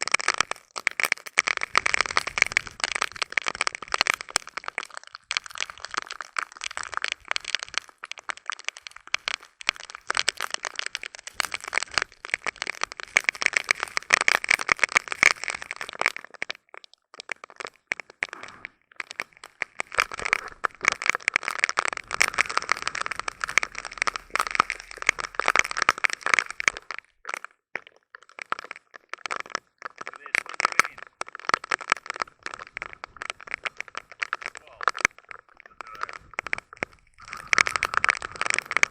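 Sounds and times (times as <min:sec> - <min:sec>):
heavy rain: 0:22.0 - 0:26.6.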